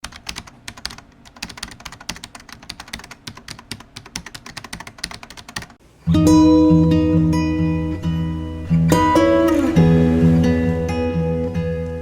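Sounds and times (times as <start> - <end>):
typing on keyboard: 0.0 - 5.8.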